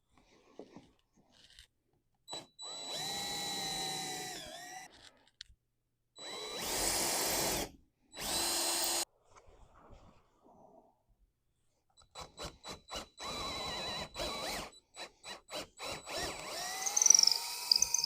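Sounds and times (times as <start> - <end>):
power tool motor whine: 15.9 - 18.0.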